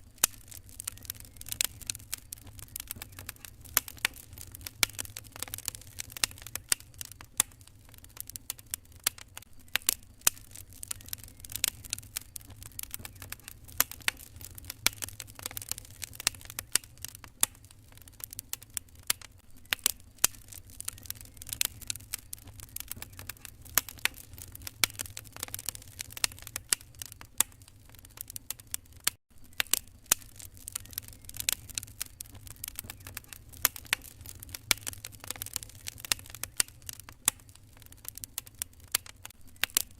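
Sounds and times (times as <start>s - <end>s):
low steady rumble: 0.0s - 9.5s, 10.1s - 28.0s
wood fire crackling: 0.0s - 39.9s.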